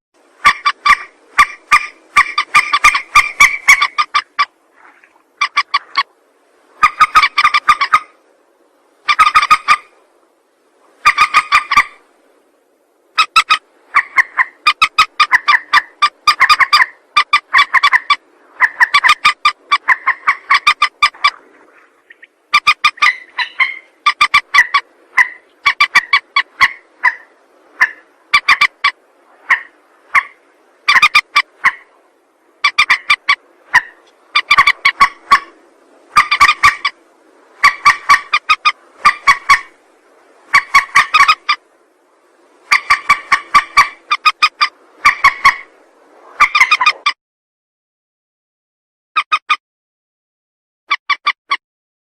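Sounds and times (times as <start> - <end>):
harsh clicking bird calls: 0.4 - 4.5, 5.4 - 6.1, 11.0 - 12.0, 22.0 - 27.2.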